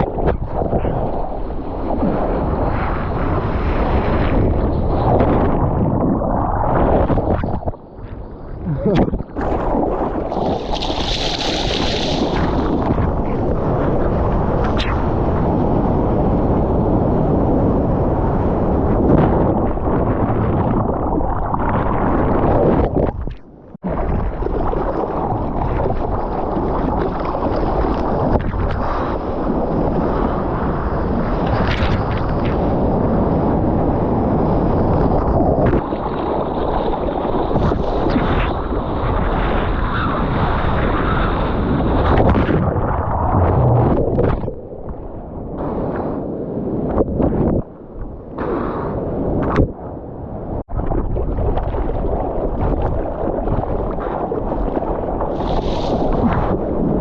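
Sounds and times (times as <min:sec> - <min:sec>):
surf rushing: 0:00.0 - 0:57.0
wind blasting microphone: 0:00.0 - 0:57.0
splashy crackles: 0:08.8 - 0:13.4.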